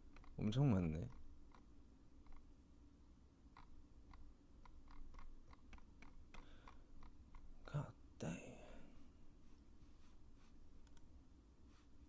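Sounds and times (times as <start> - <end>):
mouse and keyboard clicking: 0.0 - 0.4, 1.0 - 2.5, 3.6 - 7.5.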